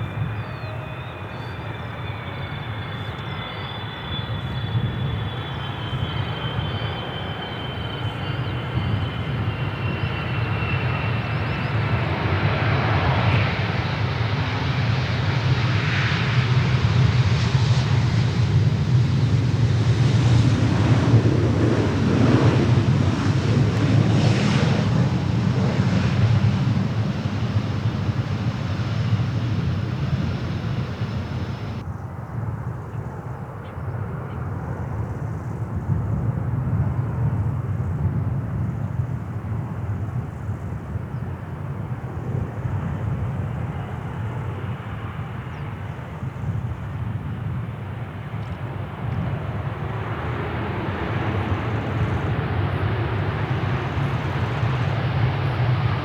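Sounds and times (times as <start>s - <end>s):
jet airliner engines passing: 0.0s - 56.0s
faint high whine: 24.5s - 31.8s.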